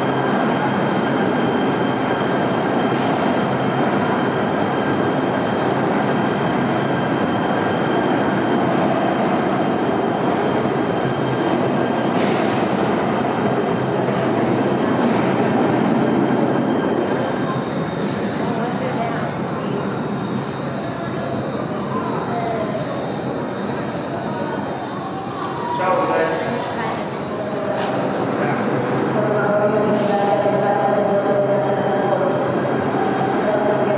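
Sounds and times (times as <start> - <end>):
light rail train rumbling: 0.0 - 33.9.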